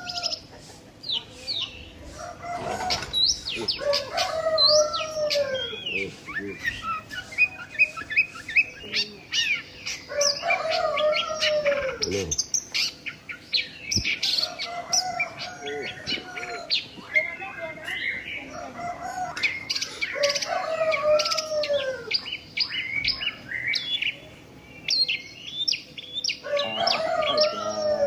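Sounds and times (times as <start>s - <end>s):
rooster crowing: 0.0s - 0.4s, 2.1s - 6.1s, 10.1s - 12.0s, 14.4s - 16.8s, 18.5s - 22.1s, 26.4s - 28.0s
small birds chirping: 0.0s - 28.0s.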